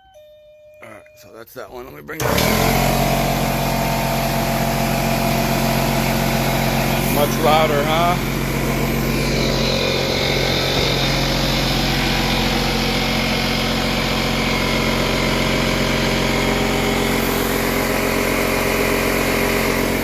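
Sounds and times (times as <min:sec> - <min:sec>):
air compressor running: 0:02.1 - 0:20.0.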